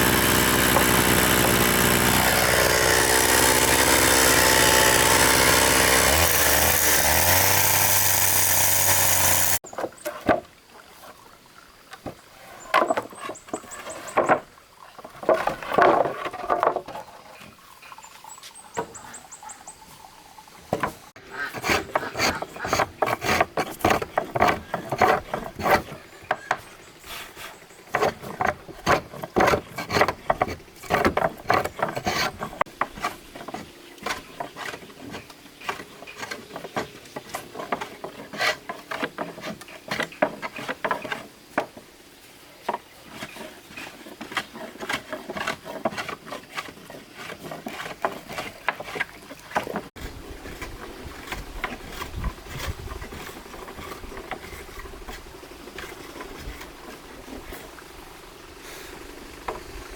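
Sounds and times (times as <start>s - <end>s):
loud motor running: 0.0s - 9.6s
knocks and scrapes: 12.0s - 17.6s, 20.7s - 41.9s, 42.6s - 57.7s.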